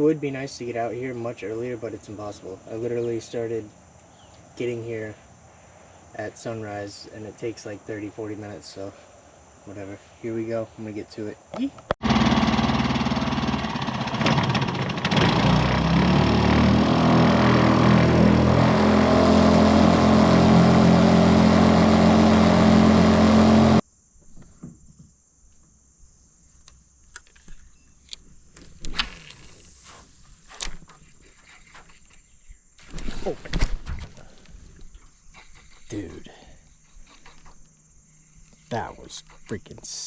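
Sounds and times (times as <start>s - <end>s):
outboard motor running: 12.0s - 23.8s.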